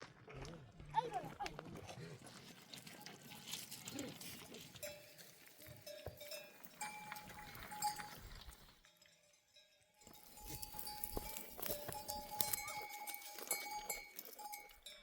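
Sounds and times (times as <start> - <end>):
livestock bells ringing: 4.8 - 15.0
sheep and goats bleating: 10.3 - 14.6.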